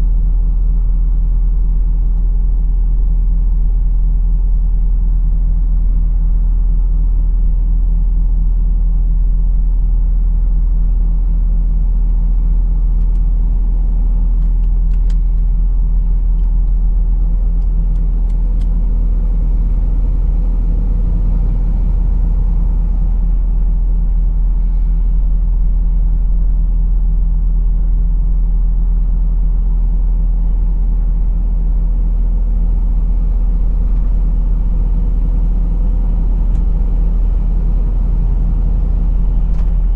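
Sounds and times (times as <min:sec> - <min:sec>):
truck diesel engine droning: 0:11.7 - 0:25.4, 0:31.4 - 0:39.9.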